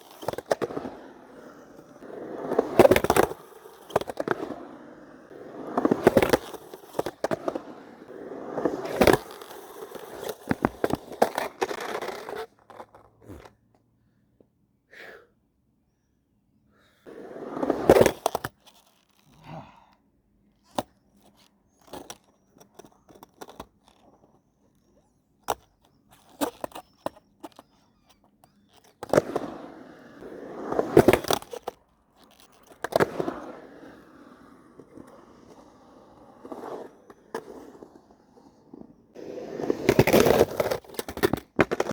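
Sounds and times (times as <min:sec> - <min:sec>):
skateboard rolling on concrete: 0:00.0 - 0:13.6, 0:17.0 - 0:19.2, 0:20.7 - 0:41.9
skateboard deck clacking on ground: 0:32.3 - 0:41.9.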